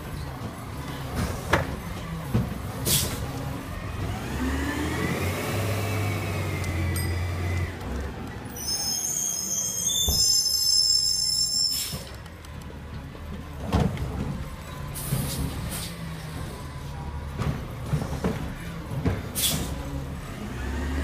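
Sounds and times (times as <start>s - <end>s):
garbage truck engine revving: 0.6s - 8.4s, 14.0s - 21.0s.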